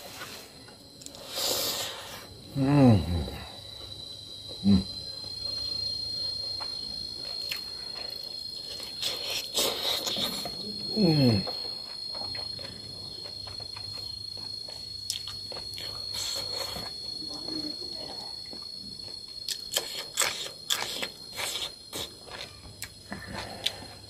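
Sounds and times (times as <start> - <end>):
crickets chirring: 0.0 - 24.0
chewing and lip-smacking: 7.4 - 10.5, 13.2 - 17.0, 18.6 - 23.8.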